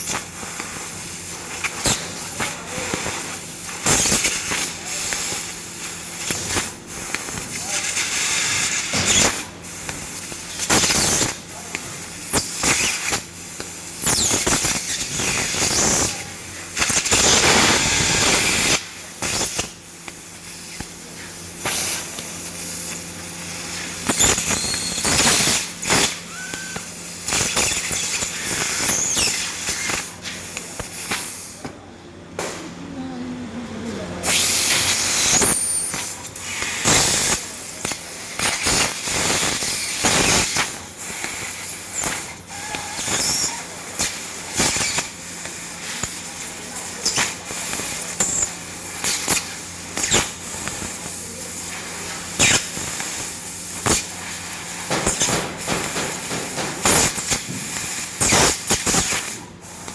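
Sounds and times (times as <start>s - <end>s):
laser cutting head hissing: 0.0s - 31.6s, 34.2s - 59.9s
low machine hum: 31.8s - 34.2s.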